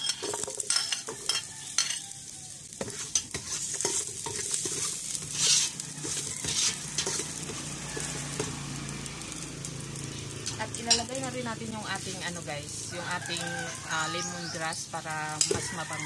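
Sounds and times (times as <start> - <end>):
spoon scraping a pot: 0.0 - 2.1, 2.8 - 8.5, 15.3 - 15.9
sizzling in hot oil: 0.0 - 16.0.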